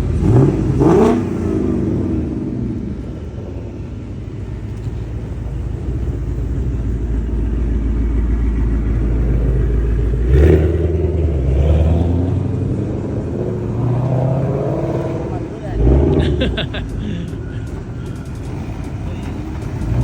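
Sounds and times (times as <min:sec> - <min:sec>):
engine revving hard: 0:00.0 - 0:03.0, 0:08.8 - 0:20.0
car engines rumbling: 0:00.0 - 0:20.0.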